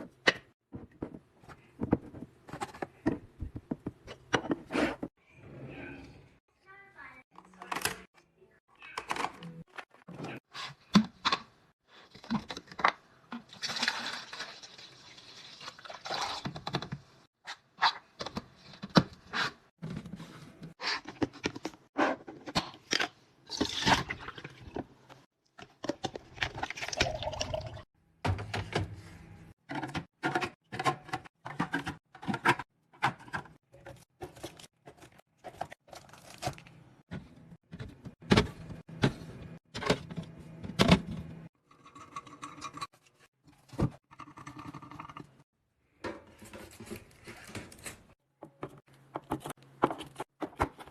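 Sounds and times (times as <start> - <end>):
containers knocking and clattering: 0.0 - 5.1.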